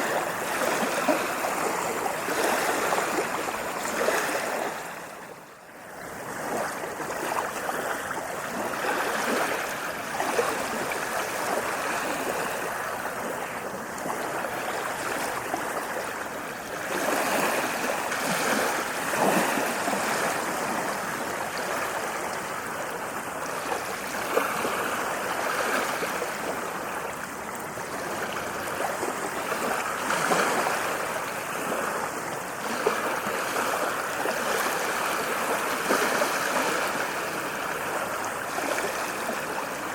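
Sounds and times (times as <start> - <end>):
ocean waves washing on beach: 0.0 - 39.9.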